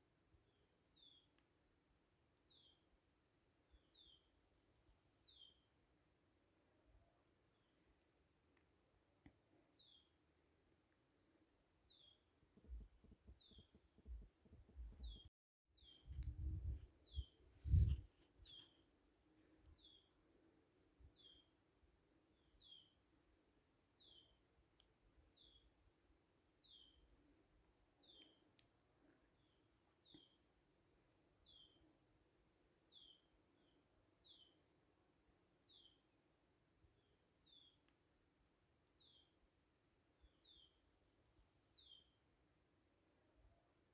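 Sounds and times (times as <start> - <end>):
low rumbling thumps: 16.1 - 18.0.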